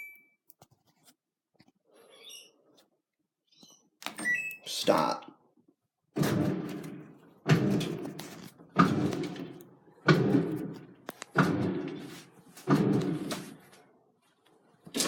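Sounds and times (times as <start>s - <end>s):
washing machine drum thumping: 6.2s - 13.7s.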